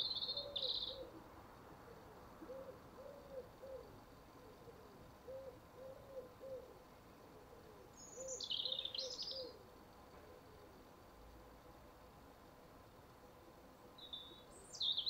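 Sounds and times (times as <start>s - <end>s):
faint dove cooing: 0.0s - 11.0s.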